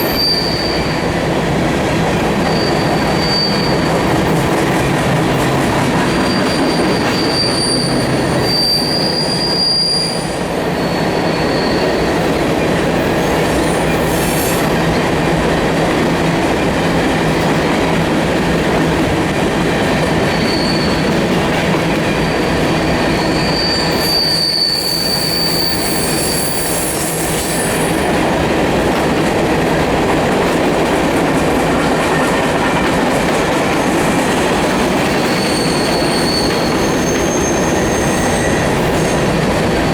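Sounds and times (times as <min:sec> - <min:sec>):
high-pitched wheel squeal: 0:00.0 - 0:01.1, 0:02.4 - 0:04.4, 0:05.9 - 0:12.2, 0:20.2 - 0:21.3, 0:22.1 - 0:27.9, 0:35.1 - 0:39.9
freight train wheels on rails: 0:00.0 - 0:39.9.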